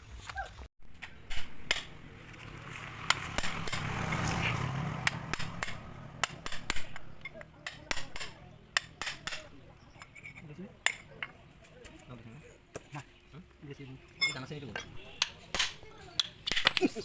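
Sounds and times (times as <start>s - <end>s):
sharp knocks and clicks: 5.0s - 10.1s.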